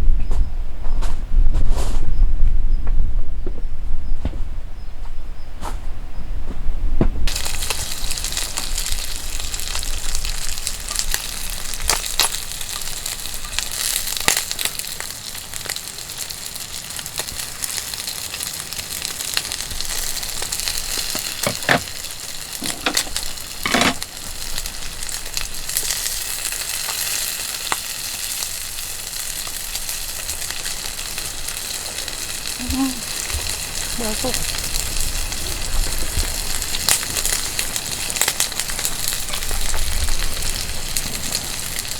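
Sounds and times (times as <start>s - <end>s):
food sizzling in a pan: 7.3s - 41.9s
utensil clicking against pan: 22.6s - 24.1s.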